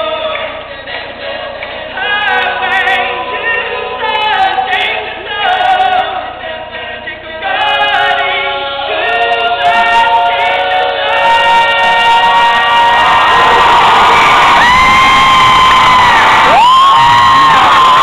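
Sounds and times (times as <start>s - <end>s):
vocal group singing in harmony: 0.0s - 18.0s.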